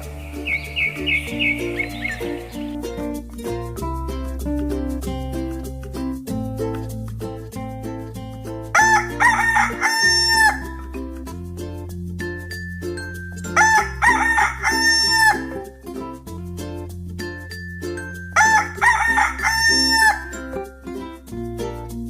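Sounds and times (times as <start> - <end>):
music with beat and bass: 0.0 - 22.0
rooster crowing: 8.8 - 10.6, 13.6 - 15.6, 18.4 - 20.4.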